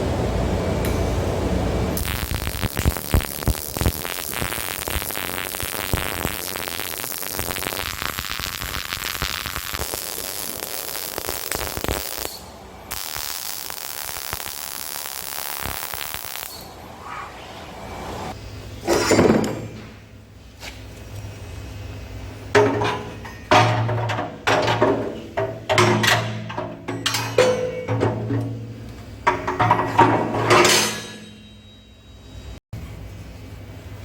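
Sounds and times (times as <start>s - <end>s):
arc welding crackling hiss: 2.0s - 16.8s.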